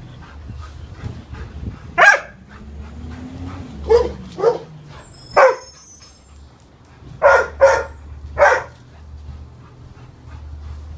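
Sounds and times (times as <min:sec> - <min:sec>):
dog barking: 0:02.0 - 0:02.4, 0:03.8 - 0:04.8, 0:05.4 - 0:05.7, 0:07.2 - 0:08.8.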